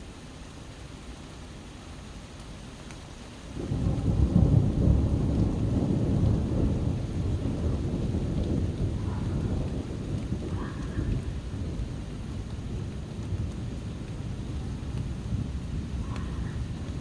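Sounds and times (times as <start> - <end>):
steady rain: 0.0 - 17.0
low rumble of thunder: 3.5 - 17.0.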